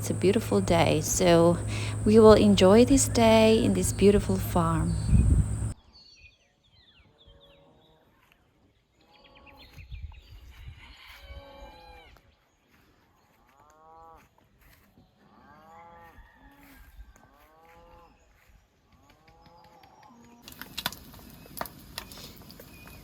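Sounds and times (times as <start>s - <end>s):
faint cattle mooing: 0.0s - 5.7s.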